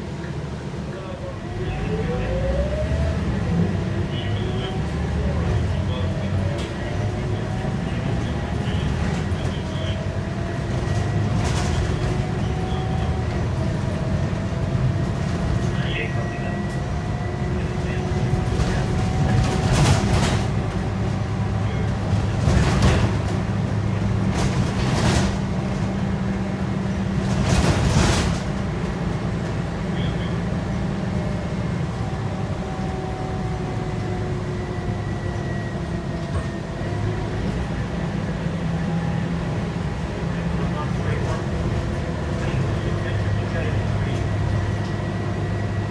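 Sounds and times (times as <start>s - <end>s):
bus diesel engine running: 0.0s - 45.9s.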